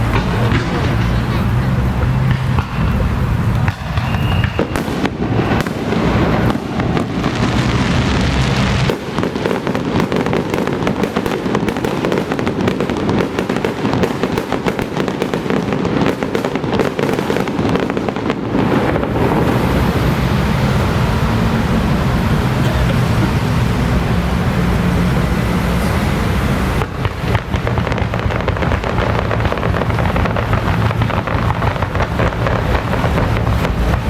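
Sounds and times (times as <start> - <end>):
steady low rumble: 0.0 - 10.0, 18.1 - 34.0
firecrackers crackling: 0.0 - 34.0.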